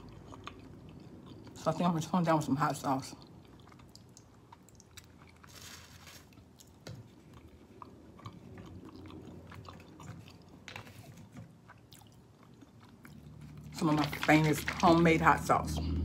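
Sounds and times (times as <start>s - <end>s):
person chewing food: 0.0s - 1.8s, 2.8s - 13.8s.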